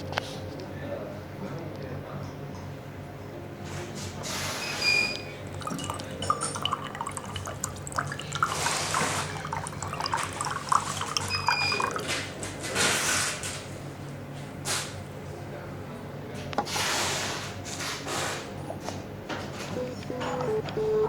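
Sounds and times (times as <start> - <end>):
water pouring into teapot: 5.0 - 12.4
water dripping: 5.4 - 12.2
ceramic clinks: 5.5 - 12.1.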